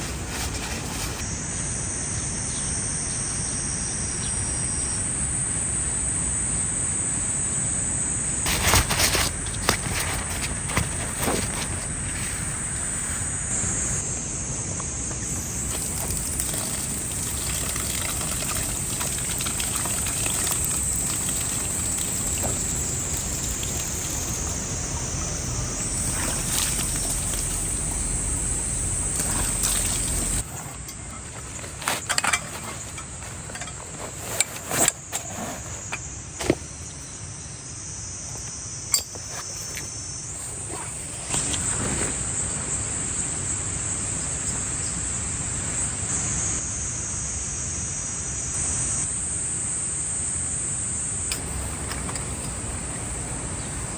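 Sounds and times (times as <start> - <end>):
insects chirring: 0.0 - 53.9.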